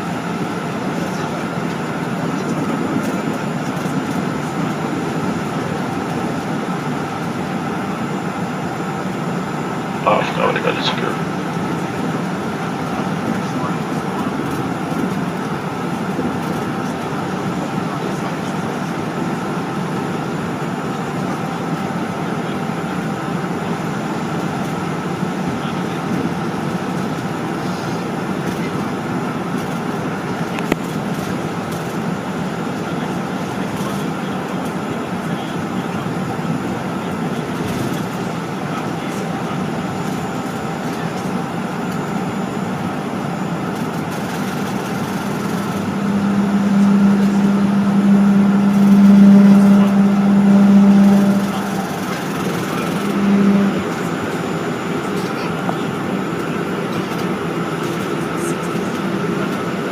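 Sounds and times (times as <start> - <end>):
airliner cabin engine noise: 0.0 - 59.9
faint high whine: 9.0 - 19.5, 31.8 - 59.9.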